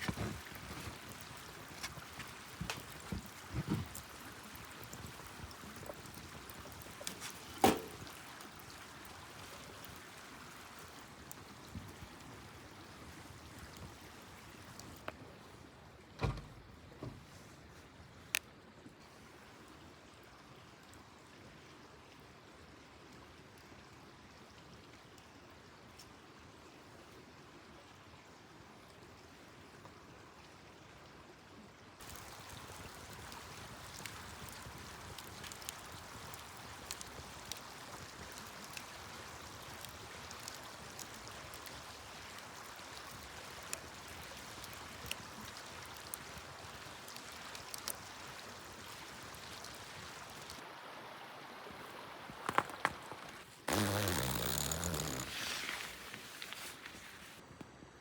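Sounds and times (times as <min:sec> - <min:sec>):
campfire crackling and popping: 0:00.0 - 0:15.2, 0:32.0 - 0:50.6, 0:52.4 - 0:57.4.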